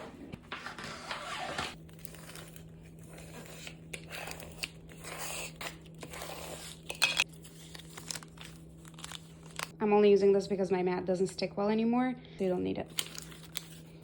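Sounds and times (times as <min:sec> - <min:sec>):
steady low hum: 0:00.0 - 0:14.0
plastic sheet crinkling: 0:07.2 - 0:09.8, 0:12.9 - 0:14.0.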